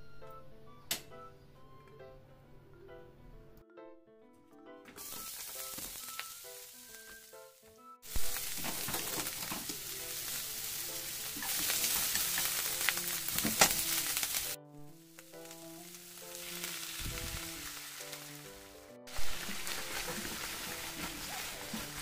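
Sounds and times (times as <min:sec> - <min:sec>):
plinking background music: 0:00.0 - 0:22.0
onions sizzling in a frying pan: 0:05.0 - 0:22.0.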